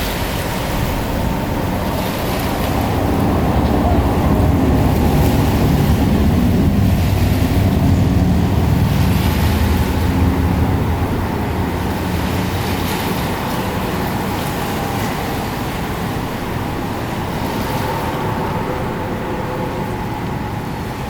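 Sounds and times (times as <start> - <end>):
motor engine rumbling: 0.0 - 21.0.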